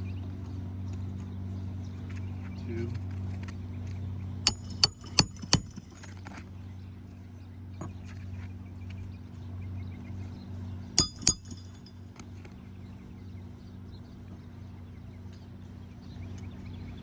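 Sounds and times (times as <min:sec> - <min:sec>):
steady low hum: 0:00.0 - 0:17.0
hammer striking nail: 0:04.5 - 0:06.1, 0:11.0 - 0:11.9.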